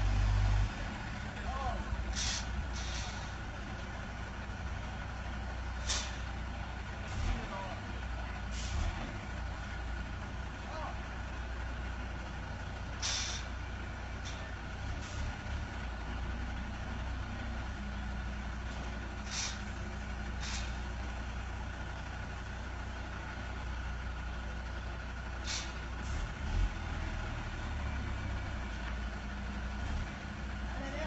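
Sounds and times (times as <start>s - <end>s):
diesel engine running: 0.0s - 31.0s
short sharp hisses: 2.1s - 3.3s, 5.8s - 6.3s, 13.0s - 13.5s, 19.3s - 19.7s, 20.4s - 20.8s, 25.4s - 25.8s.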